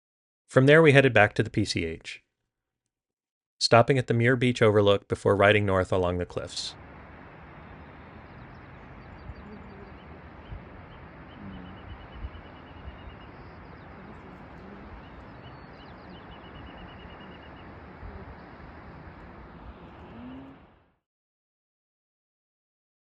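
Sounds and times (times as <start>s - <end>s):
low hooting notes: 5.2s - 20.8s
steady rushing background: 6.6s - 20.8s
bird trills: 6.8s - 20.5s.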